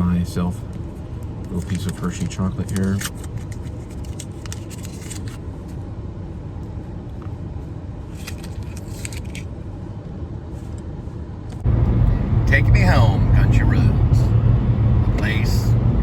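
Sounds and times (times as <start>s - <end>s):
low background rumble: 0.0s - 16.0s
foil wrapper crinkling: 1.5s - 5.4s, 8.2s - 9.4s.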